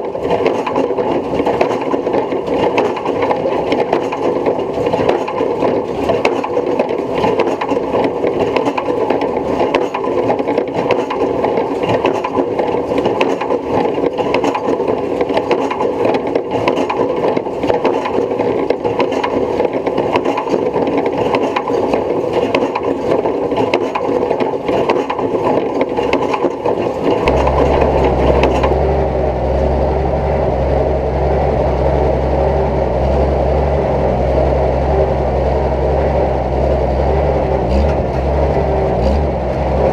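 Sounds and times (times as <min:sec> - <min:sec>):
baler mechanical clatter: 0:00.0 - 0:39.9
low engine drone: 0:25.9 - 0:39.9.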